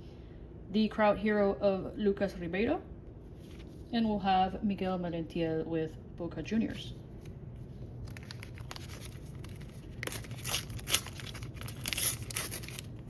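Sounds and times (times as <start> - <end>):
paper wrapper crinkling: 7.2 - 13.0.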